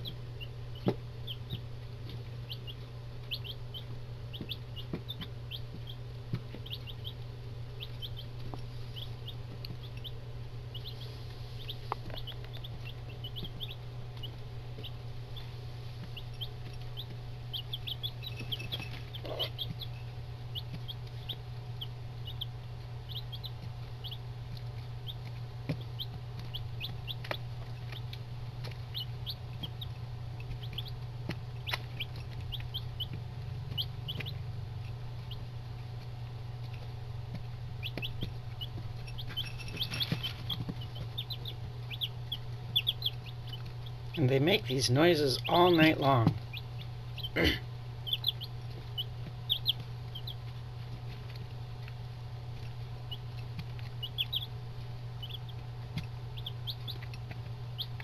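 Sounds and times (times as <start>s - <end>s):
chicks peeping: 0.0s - 58.0s
steady low hum: 0.0s - 58.0s.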